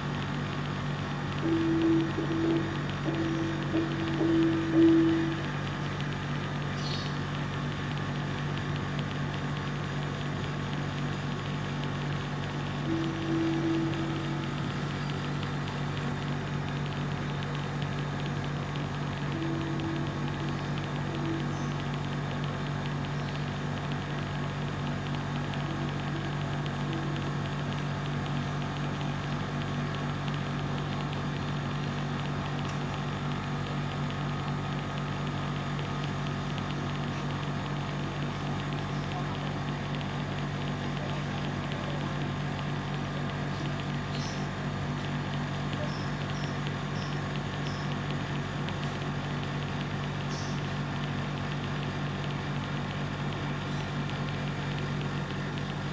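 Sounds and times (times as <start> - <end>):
motor humming: 0.0 - 7.5, 11.5 - 29.1.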